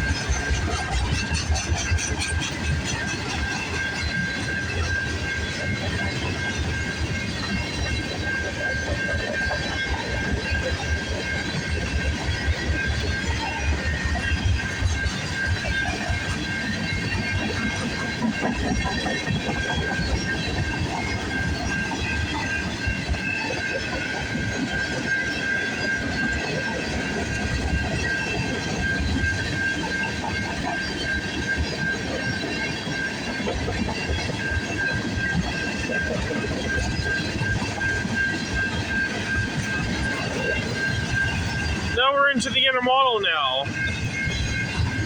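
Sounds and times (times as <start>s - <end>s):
train wheels clicking and rumbling: 0.0s - 45.0s.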